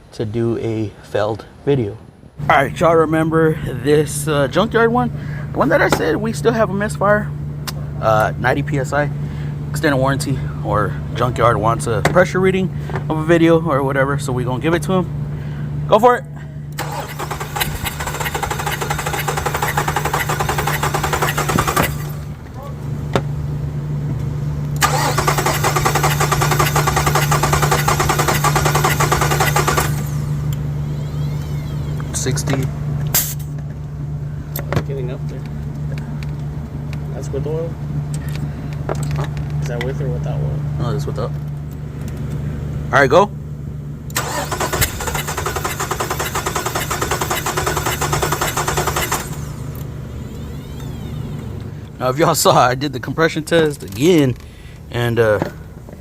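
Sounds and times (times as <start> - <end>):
steady background hum: 0.0 - 56.0
starter cranking engine: 16.8 - 22.3, 24.8 - 32.0, 44.1 - 51.5.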